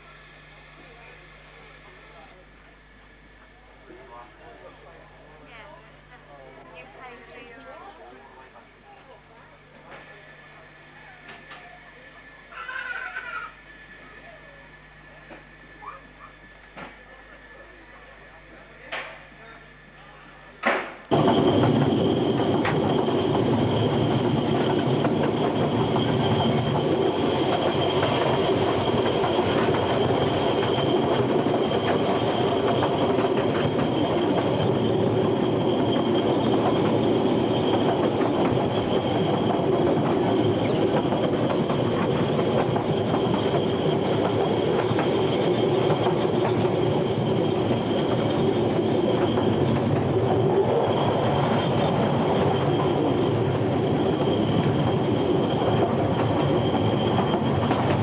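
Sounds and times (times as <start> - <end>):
wheels rumbling on rail: 20.5 - 58.0
high wheel squeal: 21.1 - 58.0.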